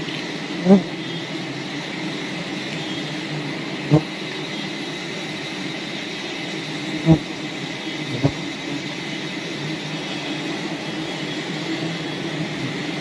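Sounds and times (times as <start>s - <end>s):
swarm of bees buzzing: 0.4s - 4.3s, 6.7s - 13.0s.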